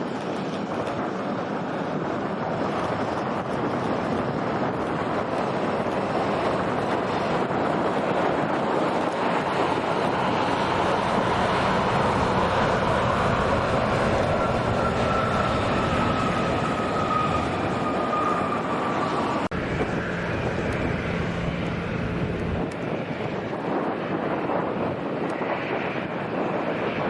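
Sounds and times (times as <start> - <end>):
jet engines roaring: 0.0 - 27.0
faint falling engine whine: 9.8 - 23.1.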